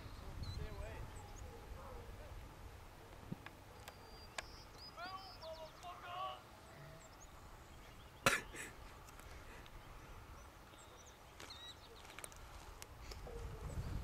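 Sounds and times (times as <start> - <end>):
bird chirps: 0.0 - 1.6, 3.7 - 8.8, 9.7 - 12.3.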